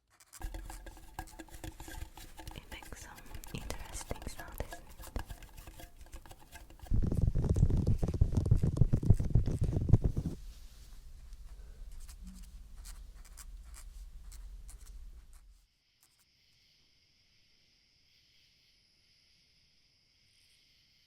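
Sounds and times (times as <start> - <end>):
scratchy rubbing on microphone: 0.1 - 11.3, 11.9 - 15.6.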